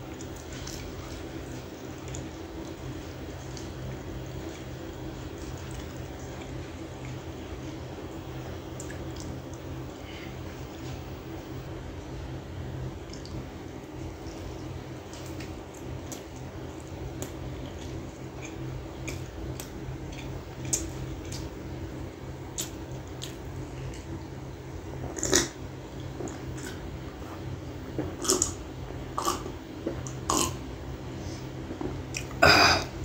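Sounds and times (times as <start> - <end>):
steady low hum: 0.0 - 33.0
mouth chewing food: 15.0 - 21.6, 22.5 - 24.1, 29.2 - 30.6.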